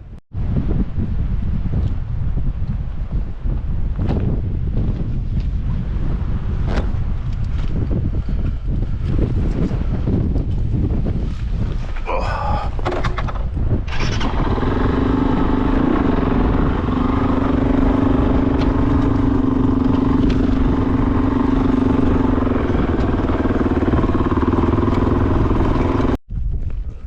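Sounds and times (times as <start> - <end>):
motorcycle engine running: 12.8 - 26.2.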